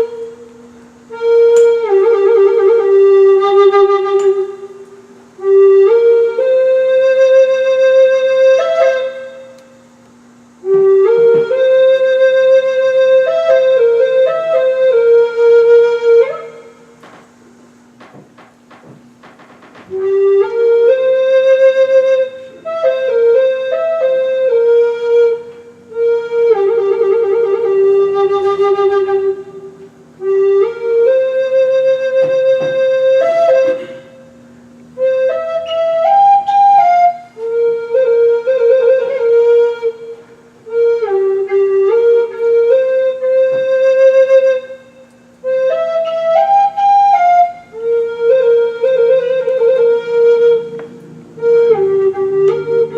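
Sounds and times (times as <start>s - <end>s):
flute melody: 0.0s - 17.4s, 18.0s - 52.9s
low drone tone: 47.8s - 52.9s.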